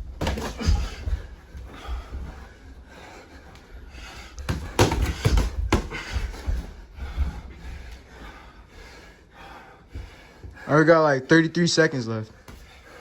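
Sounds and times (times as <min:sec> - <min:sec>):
heavy panting: 0:00.2 - 0:11.4, 0:12.3 - 0:13.0
thuds and smacks of blows: 0:04.4 - 0:06.4
stamping feet: 0:04.4 - 0:07.9.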